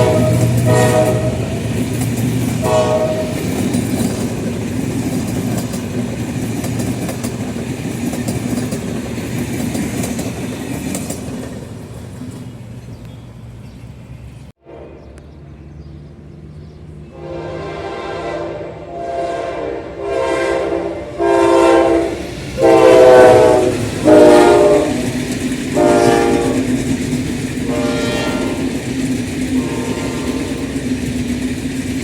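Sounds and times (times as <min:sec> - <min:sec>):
locomotive air horn blasts: 0:00.0 - 0:01.7, 0:02.6 - 0:03.6, 0:14.6 - 0:15.2, 0:17.1 - 0:26.7, 0:27.6 - 0:28.8, 0:29.6 - 0:30.8
train rumble: 0:00.0 - 0:32.0.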